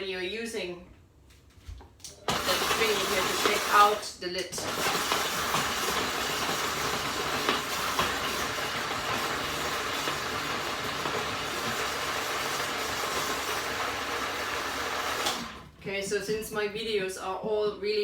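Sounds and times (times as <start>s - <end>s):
food processor blending: 2.1s - 15.8s.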